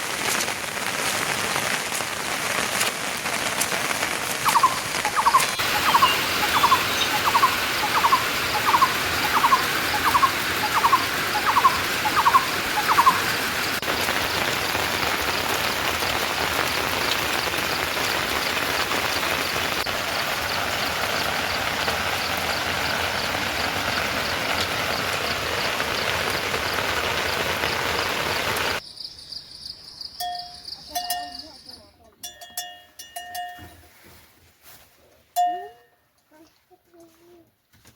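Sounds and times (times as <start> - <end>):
heavy rain: 0.0 - 28.8.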